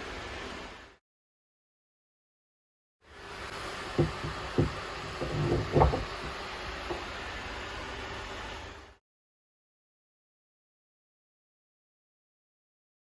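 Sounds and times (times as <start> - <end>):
steady background hiss: 3.1 - 9.0
hollow knocks and clunks: 3.9 - 7.1.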